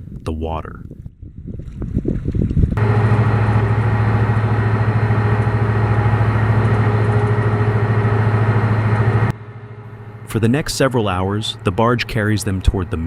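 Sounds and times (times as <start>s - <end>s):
boat engine droning: 2.8s - 13.0s.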